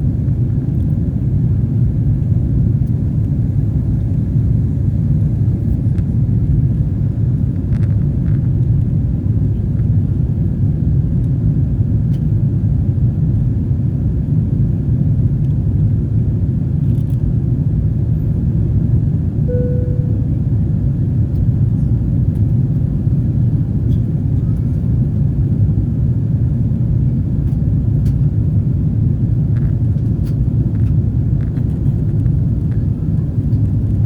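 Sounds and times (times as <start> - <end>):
jet engines rumbling in cabin: 0.0 - 34.0
short tone: 19.5 - 20.7.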